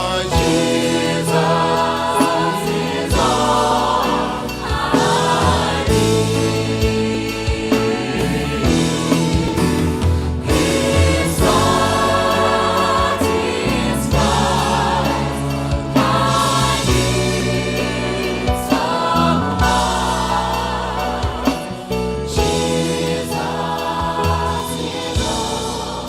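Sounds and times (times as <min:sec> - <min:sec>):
gospel choir singing: 0:00.0 - 0:26.0
instrumental backing with beat: 0:00.0 - 0:26.0.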